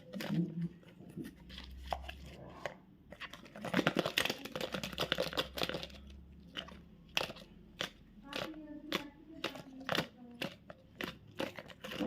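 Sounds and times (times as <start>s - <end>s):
candy wrapper crinkling: 3.1s - 12.0s.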